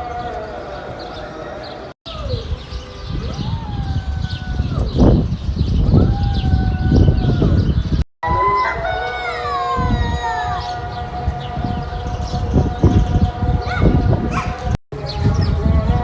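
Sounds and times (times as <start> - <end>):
animal calling: 8.2 - 14.8.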